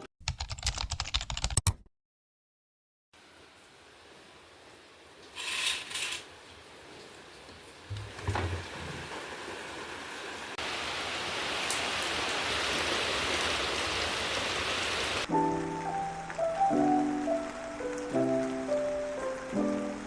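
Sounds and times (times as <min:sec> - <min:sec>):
steady rain: 0:03.2 - 0:20.0
lo-fi music with piano chords: 0:15.3 - 0:20.0.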